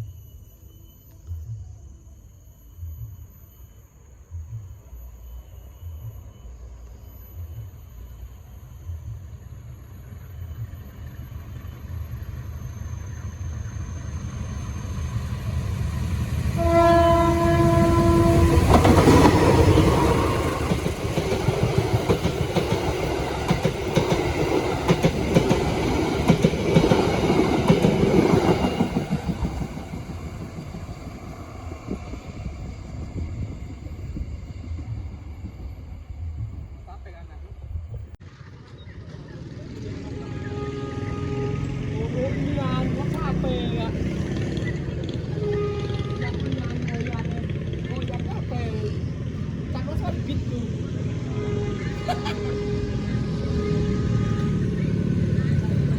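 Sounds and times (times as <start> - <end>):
wheel and rail noise: 0.0 - 55.9
diesel train rumble: 4.3 - 55.9
train horn blast: 16.5 - 20.8, 39.8 - 47.2, 50.9 - 55.9.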